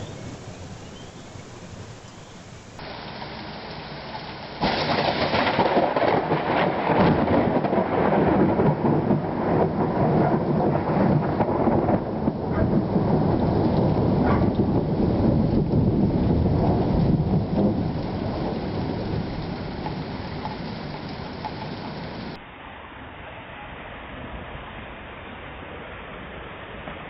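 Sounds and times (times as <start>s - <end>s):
thunder crack and rumble: 0.0s - 3.3s, 4.6s - 22.4s
rain falling: 0.0s - 27.0s.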